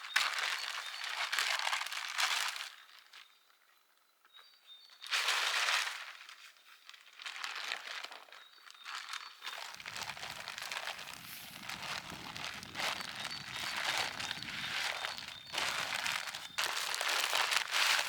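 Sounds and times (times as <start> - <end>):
crinkling and rustling: 8.9 - 18.0.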